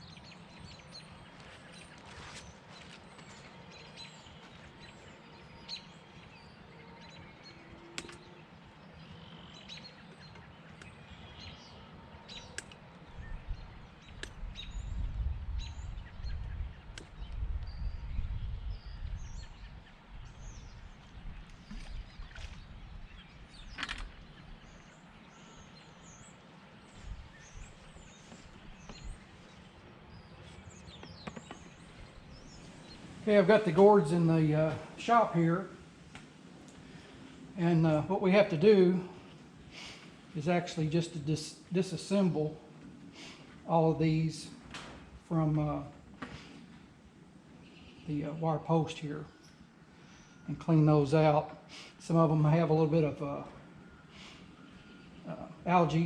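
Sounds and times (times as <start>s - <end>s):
wind rumbling on microphone: 0.0s - 43.2s
songbirds chirping: 0.0s - 56.0s
sharp clicks: 8.0s - 8.2s.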